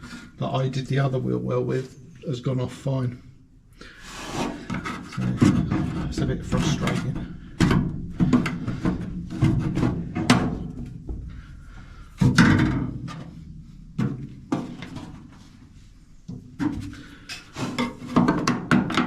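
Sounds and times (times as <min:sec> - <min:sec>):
hand tool scraping sheet metal: 0:04.0 - 0:07.2.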